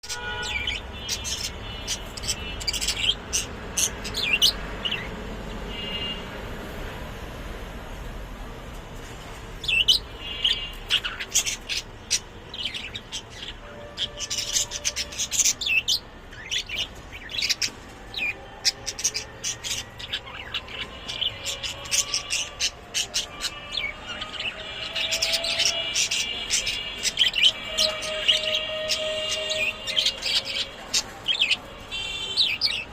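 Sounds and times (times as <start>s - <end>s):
birds chirping: 0.0s - 7.1s, 9.3s - 32.9s.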